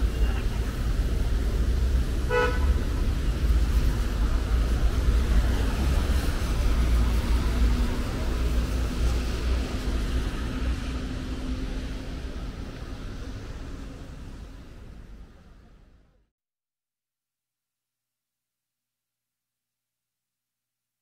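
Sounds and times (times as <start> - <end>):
traffic rumble: 0.0 - 16.3.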